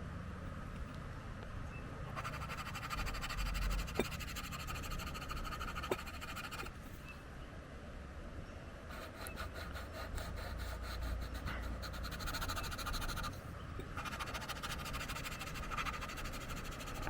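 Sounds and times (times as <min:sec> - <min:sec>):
pencil scratching on paper: 0:02.1 - 0:06.7, 0:08.9 - 0:13.4, 0:14.0 - 0:17.0.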